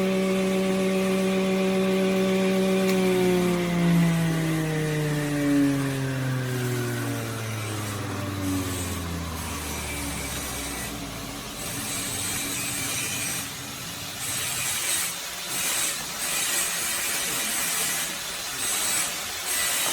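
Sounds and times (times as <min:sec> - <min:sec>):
machine motor spinning down: 0:00.0 - 0:15.9
rasping strokes on wood: 0:07.5 - 0:18.1.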